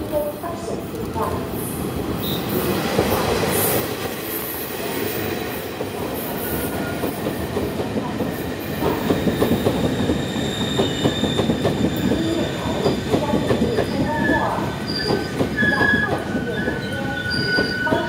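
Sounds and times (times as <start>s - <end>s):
train wheels rumbling on rail: 0.0s - 18.0s
high wheel squeal: 14.2s - 18.0s.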